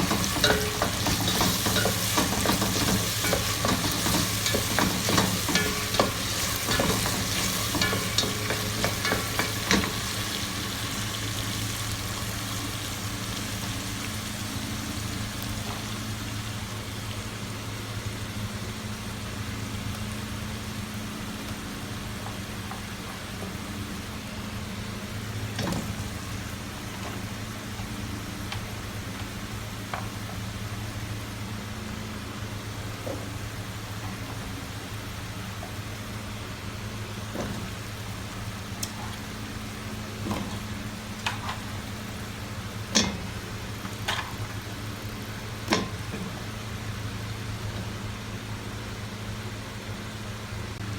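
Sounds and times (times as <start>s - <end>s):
food sizzling in a pan: 0.0s - 18.3s.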